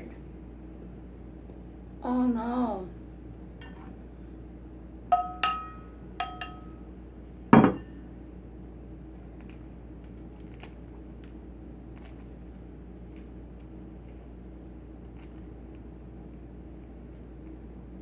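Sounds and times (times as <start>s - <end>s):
egg clinking against dishware: 5.1s - 6.8s, 7.6s - 7.9s.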